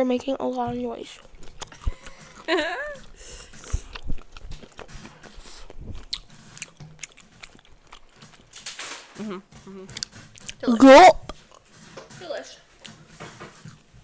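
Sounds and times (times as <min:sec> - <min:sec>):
chewing and biting food: 0:00.0 - 0:12.1, 0:12.7 - 0:14.0
wet mouth smacks and clicks: 0:01.2 - 0:02.4, 0:03.0 - 0:08.4.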